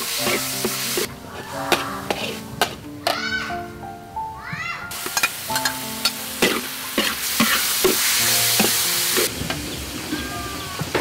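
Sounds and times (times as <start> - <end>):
metal spatula scraping pan: 0.0 - 2.8, 5.1 - 9.3
minced meat sizzling in wok: 0.0 - 3.2, 4.9 - 11.0.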